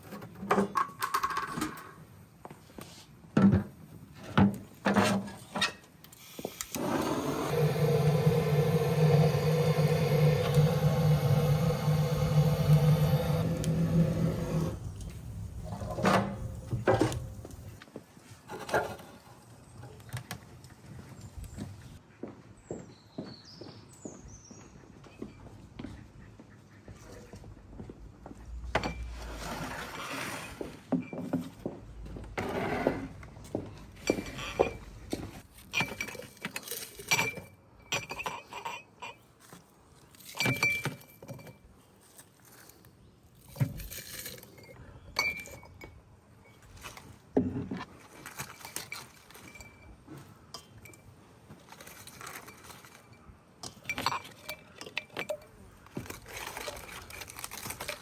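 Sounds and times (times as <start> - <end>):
kitchenware clinking and knocking: 15.6 - 17.8.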